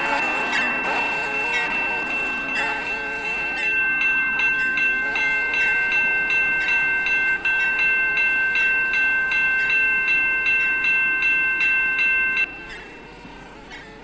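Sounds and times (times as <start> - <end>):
railroad crossing bell ringing: 0.0 - 14.0.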